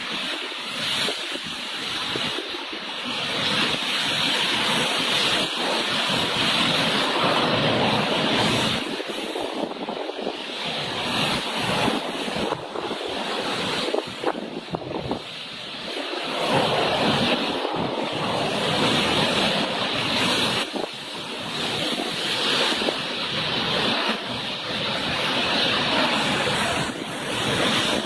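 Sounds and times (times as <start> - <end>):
strong wind buffeting microphone: 0.0 - 28.0.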